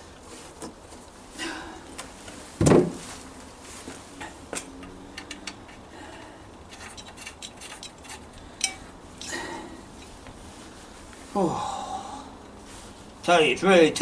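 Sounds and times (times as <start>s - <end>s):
metal parts and tools clicking: 4.2s - 9.4s.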